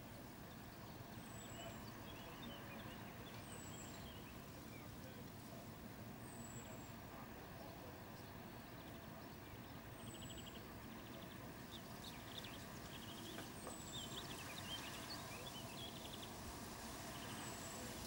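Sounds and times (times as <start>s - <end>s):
songbirds singing: 0.0s - 18.0s.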